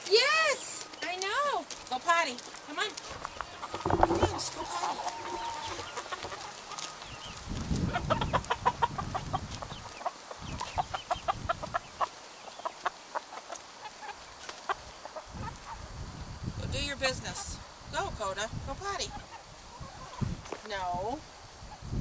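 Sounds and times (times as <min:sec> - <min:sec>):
chickens clucking: 0:03.4 - 0:15.9, 0:18.9 - 0:20.9.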